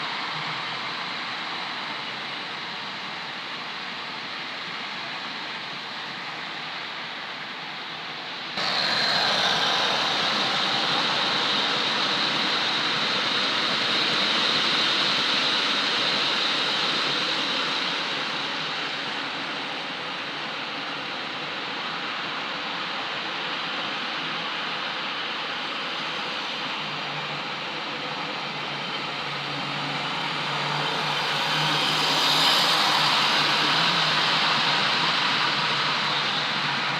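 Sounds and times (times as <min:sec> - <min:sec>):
model train motor hum: 0:08.6 - 0:15.7, 0:29.3 - 0:36.9
wheels rumbling on rails: 0:08.6 - 0:17.8, 0:29.0 - 0:36.9.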